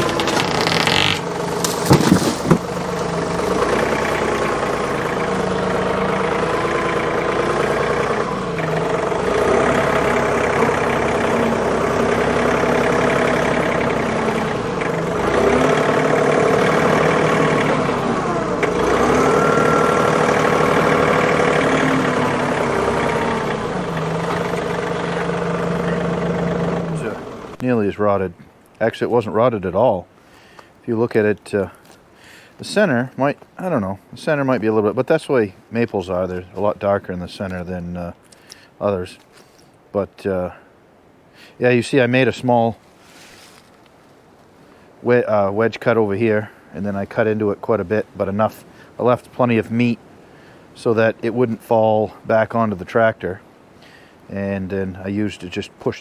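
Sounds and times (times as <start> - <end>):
tractor engine running: 0.0 - 27.7.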